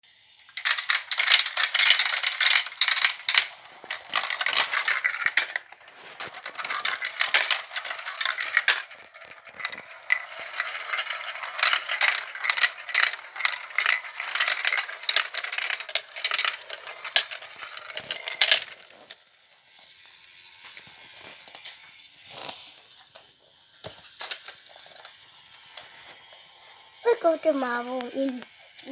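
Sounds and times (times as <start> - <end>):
marbles clattering down plastic track: 0.4 - 20.1, 23.8 - 25.2.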